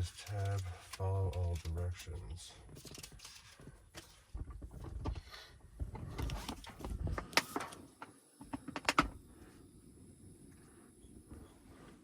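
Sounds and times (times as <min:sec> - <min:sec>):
popcorn package rustling: 0:00.0 - 0:04.3, 0:06.1 - 0:07.8.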